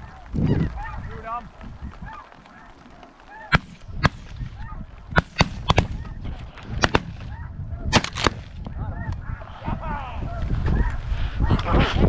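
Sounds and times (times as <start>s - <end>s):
geese calling: 0.0s - 7.9s
shotgun shots: 3.5s - 6.2s, 6.8s - 8.6s.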